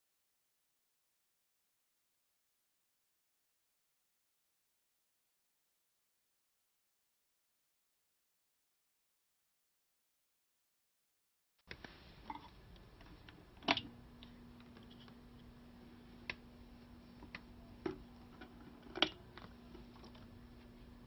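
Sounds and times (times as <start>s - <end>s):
faint steady hum: 11.7s - 21.0s.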